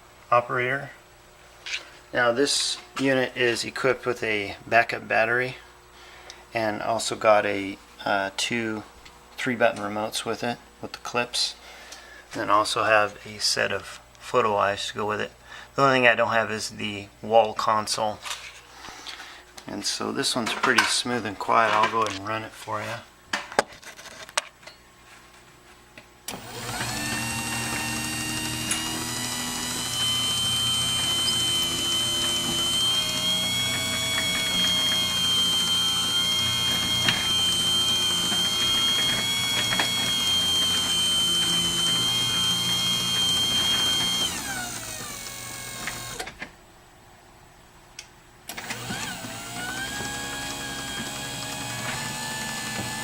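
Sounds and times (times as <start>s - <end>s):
garage door motor humming: 26.3s - 46.4s, 48.5s - 53.0s
garage door opener click: 26.3s - 46.5s, 48.5s - 53.0s.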